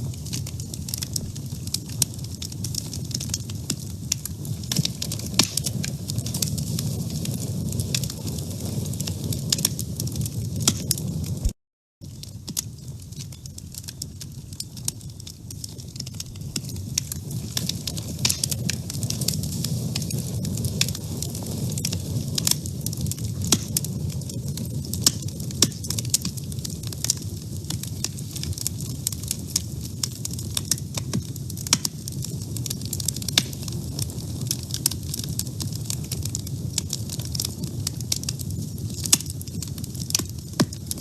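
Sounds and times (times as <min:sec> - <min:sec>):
fire crackling and popping: 0:00.0 - 0:41.0
low rumble of flames: 0:00.0 - 0:41.0.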